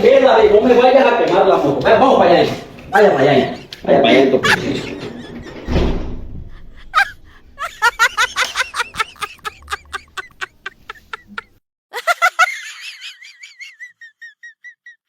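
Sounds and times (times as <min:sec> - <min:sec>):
cartoon-style snicker: 0:04.3 - 0:05.9, 0:06.9 - 0:15.0.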